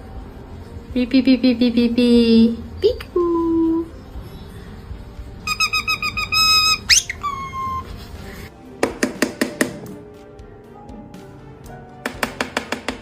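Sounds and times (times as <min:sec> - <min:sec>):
parrot whistling: 0:05.4 - 0:08.0.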